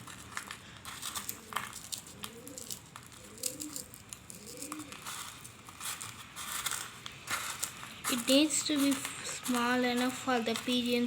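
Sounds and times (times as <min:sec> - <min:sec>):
food being crumbled by hand: 0:00.0 - 0:08.0
pigeons cooing: 0:01.2 - 0:05.2.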